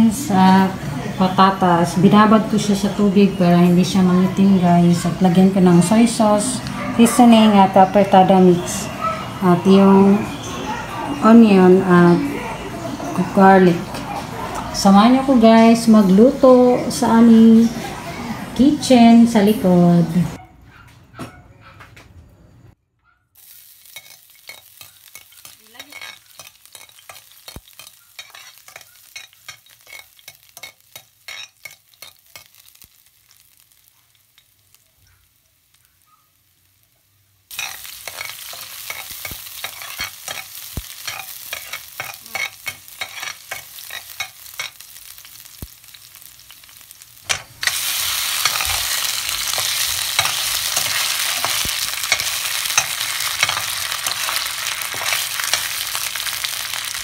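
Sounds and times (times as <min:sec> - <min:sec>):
garlic sizzling in oil: 0:00.0 - 0:20.4, 0:23.4 - 0:57.0
sausages frying: 0:00.0 - 0:20.4, 0:23.4 - 0:57.0
oil crackling in a frying pan: 0:23.4 - 0:57.0.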